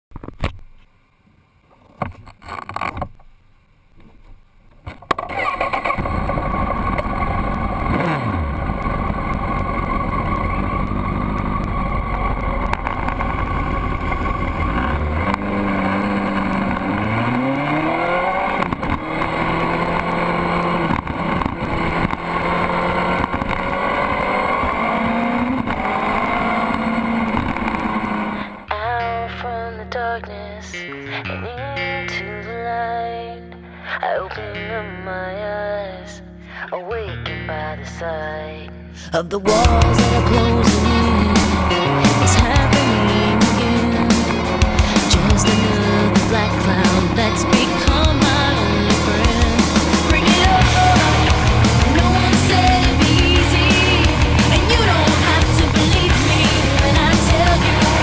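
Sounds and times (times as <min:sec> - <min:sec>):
motorcycle engine revving: 0:05.1 - 0:28.7, 0:39.5 - 0:58.0.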